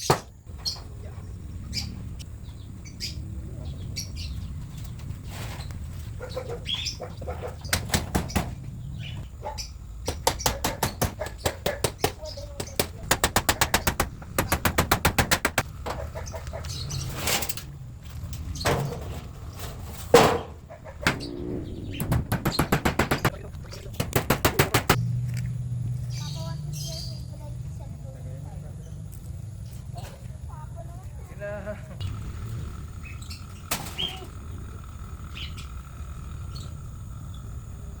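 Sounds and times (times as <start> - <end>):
chickens calling: 5.8 - 17.2, 20.2 - 25.0, 32.0 - 38.0
fast clicks: 10.2 - 15.8, 21.0 - 25.0
steady low rumble: 20.5 - 26.1, 32.0 - 38.0
wings flapping: 20.6 - 25.0.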